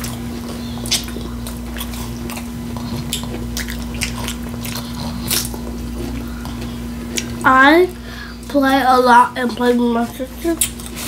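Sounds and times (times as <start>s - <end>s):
crisp crunching chewing: 0.0s - 7.4s
low electrical hum: 0.0s - 11.0s.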